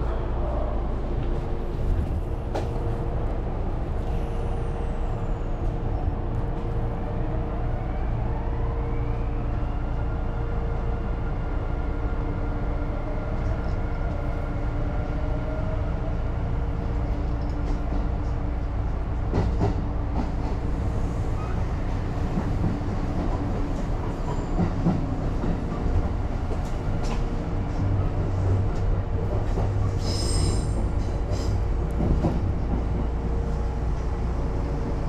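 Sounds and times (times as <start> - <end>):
train wheels rumbling on rails: 0.0 - 7.0, 11.3 - 35.0.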